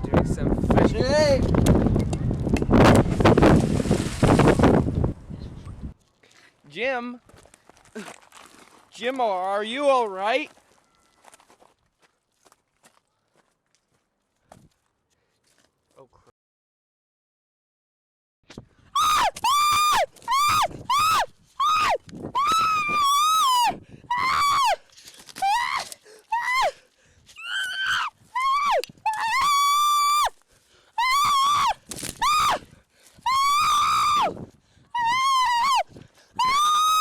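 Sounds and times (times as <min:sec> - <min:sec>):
person screaming: 0:19.0 - 0:24.8, 0:25.4 - 0:26.8, 0:27.4 - 0:30.3, 0:33.3 - 0:34.3, 0:35.0 - 0:35.8, 0:36.4 - 0:37.0.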